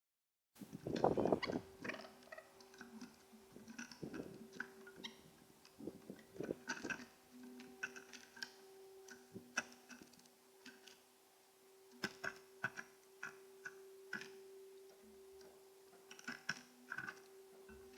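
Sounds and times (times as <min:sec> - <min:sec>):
steady low hum: 0:00.6 - 0:17.9
bird pecking at seed: 0:00.7 - 0:11.0, 0:11.9 - 0:17.9.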